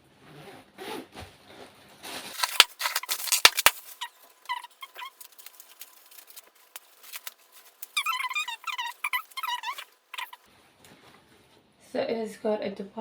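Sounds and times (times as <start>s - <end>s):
bag rustling: 2.4s - 10.4s
faint high chirping squeaks: 2.4s - 10.4s
zip and fastening clicks: 2.4s - 10.4s.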